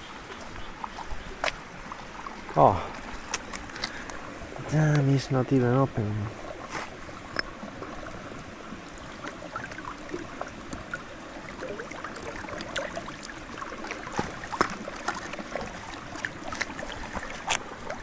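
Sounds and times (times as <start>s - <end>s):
water trickling and gurgling: 0.0s - 18.0s
small water drips: 0.3s - 4.3s, 9.0s - 18.0s.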